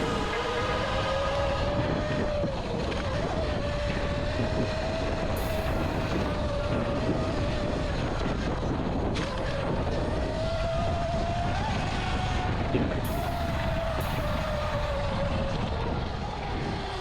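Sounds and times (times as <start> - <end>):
rough rushing noise: 0.0 - 3.0.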